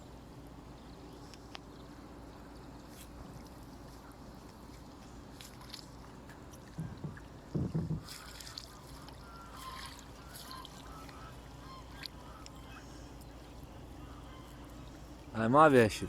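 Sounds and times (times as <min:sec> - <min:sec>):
water splashing and dripping: 0:01.3 - 0:16.0
dull knocks against boat: 0:06.7 - 0:08.3.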